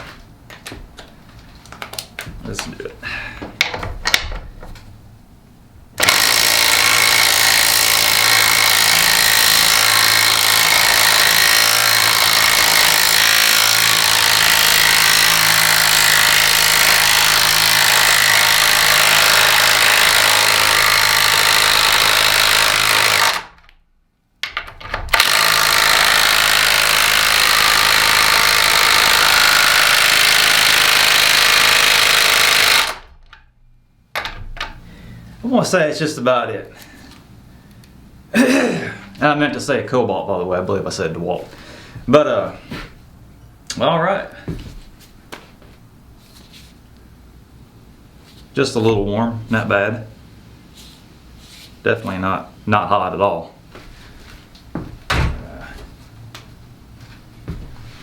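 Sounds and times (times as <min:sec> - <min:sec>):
impact driver hammering: 0:06.0 - 0:23.7, 0:24.4 - 0:33.4.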